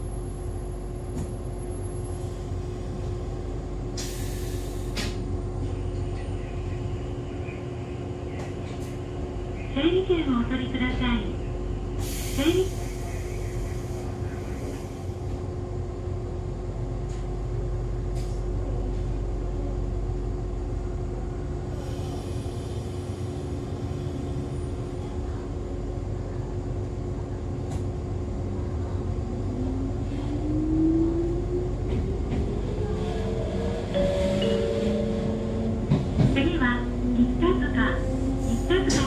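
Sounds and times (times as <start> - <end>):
railcar rumble and hum: 0.0 - 39.0
hiss of air: 4.0 - 5.1.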